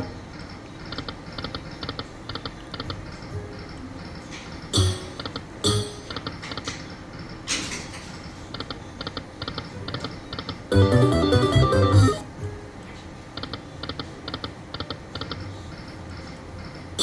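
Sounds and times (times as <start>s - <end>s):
chiming run of stepped notes: 4.8s - 6.2s, 10.7s - 12.3s.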